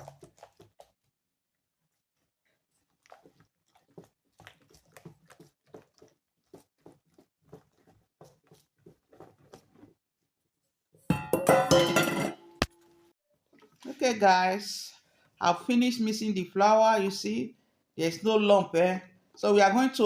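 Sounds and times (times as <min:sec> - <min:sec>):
utensil stirring batter in bowl: 0:01.9 - 0:10.7.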